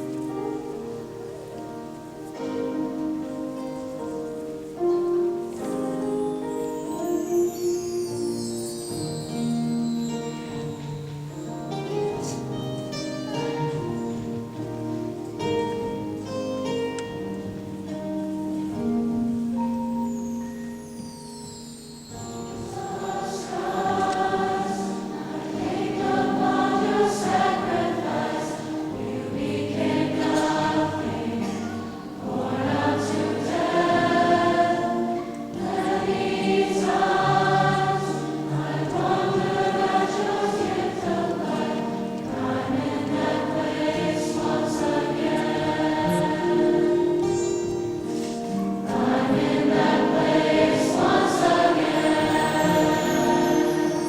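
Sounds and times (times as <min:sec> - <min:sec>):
choir singing a worship song: 0:22.2 - 0:54.0.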